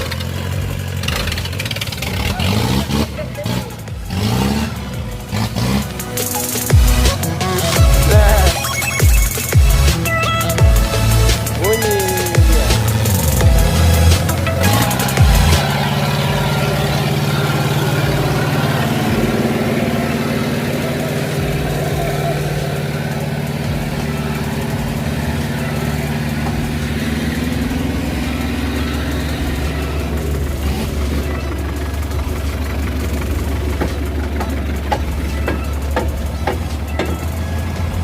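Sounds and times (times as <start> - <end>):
vehicle engine running: 0.0 - 38.0.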